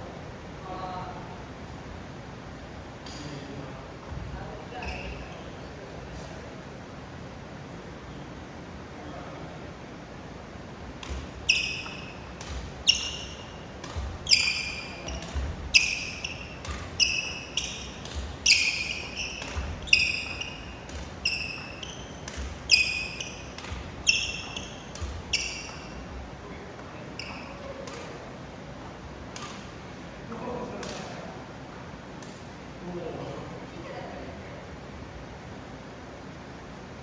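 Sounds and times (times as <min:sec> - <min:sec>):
rackets hitting shuttlecocks: 0:11.0 - 0:26.2.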